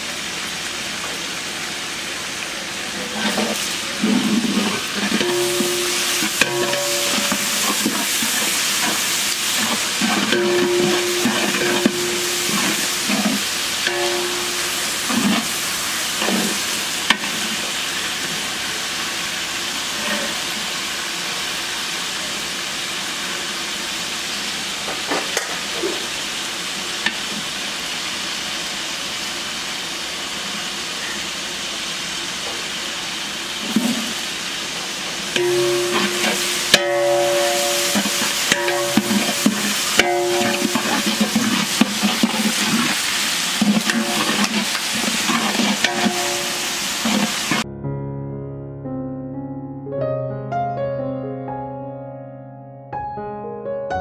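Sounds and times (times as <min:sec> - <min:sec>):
onions sizzling in oil: 0:00.0 - 0:47.6
ladle stirring and knocking pot: 0:03.2 - 0:15.6, 0:35.4 - 0:47.6.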